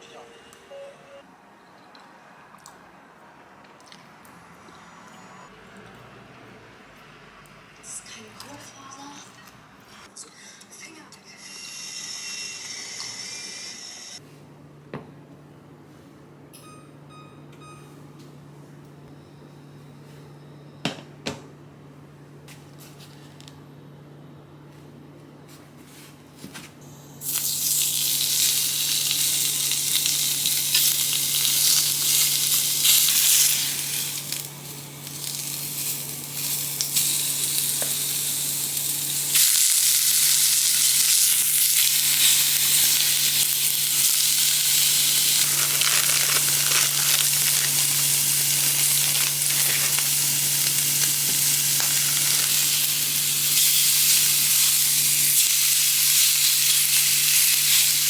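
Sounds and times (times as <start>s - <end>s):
food sizzling in oil: 27.2s - 58.0s.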